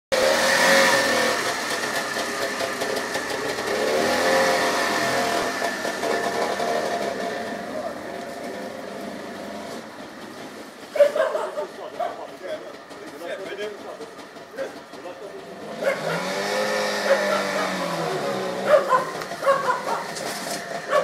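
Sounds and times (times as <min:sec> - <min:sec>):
two-stroke engine running unevenly: 0:00.1 - 0:21.0.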